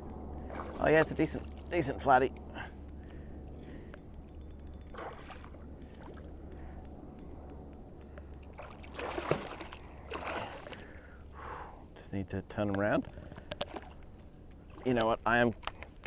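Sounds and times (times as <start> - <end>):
light ticks: 0.0 - 0.5, 2.3 - 8.5
water splashing beside kayak: 0.4 - 1.8, 8.4 - 11.1.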